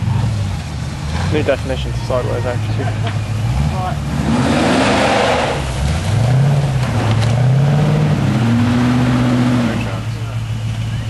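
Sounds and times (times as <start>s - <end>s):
engine revving hard: 3.4s - 10.2s.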